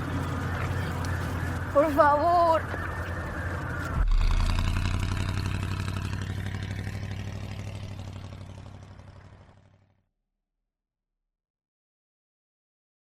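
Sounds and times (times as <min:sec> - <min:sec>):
engine pulsing rumble: 0:00.0 - 0:09.9.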